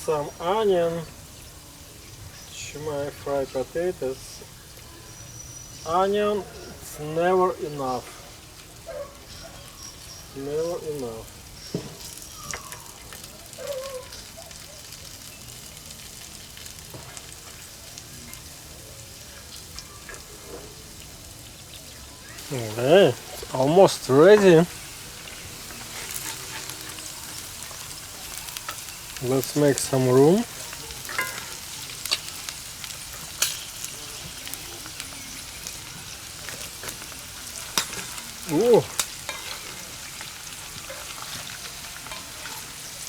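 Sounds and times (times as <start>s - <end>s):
food frying in oil: 0.0s - 43.0s
potatoes sizzling in a pan: 0.0s - 43.0s
utensil scraping a pan: 22.4s - 33.7s, 36.5s - 43.0s.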